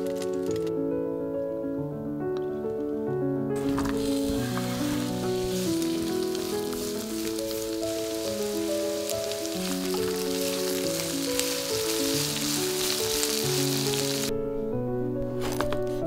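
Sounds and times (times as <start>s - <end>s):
background music: 0.0s - 16.0s
food sizzling in hot oil: 3.6s - 14.3s.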